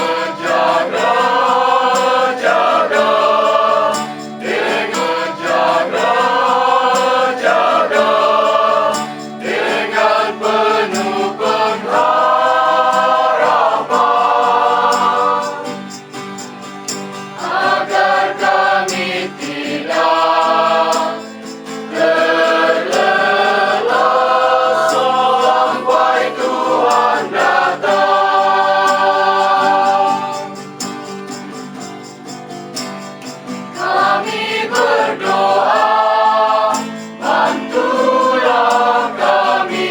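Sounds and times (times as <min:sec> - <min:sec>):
group singing in harmony: 0:00.0 - 0:16.0, 0:17.2 - 0:30.9, 0:33.7 - 0:39.9.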